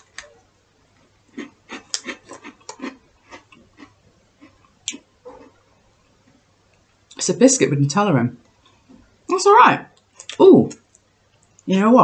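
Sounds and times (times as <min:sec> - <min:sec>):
crunchy biscuit chewing: 0:01.2 - 0:05.7.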